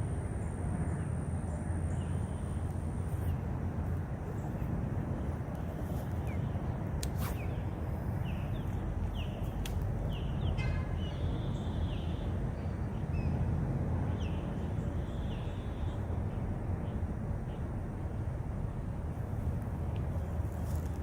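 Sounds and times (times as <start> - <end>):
steady low rumble: 0.0 - 11.4, 12.2 - 21.0
birds chirping: 4.1 - 13.4.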